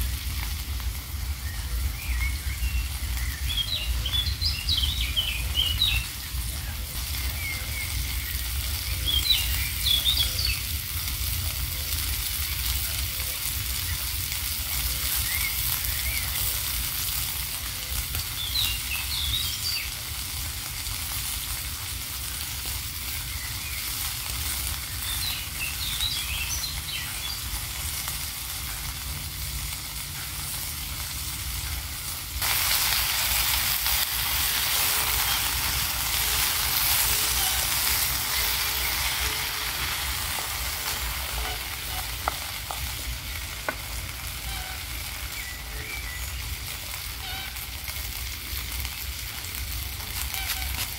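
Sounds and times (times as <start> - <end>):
food sizzling in a frying pan: 0.0 - 50.9.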